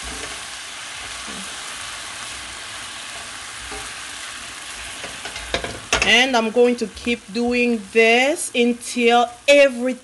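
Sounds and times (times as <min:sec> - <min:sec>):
spatula stirring: 0:00.0 - 0:07.5
vegetables sizzling in a pot: 0:00.0 - 0:10.0.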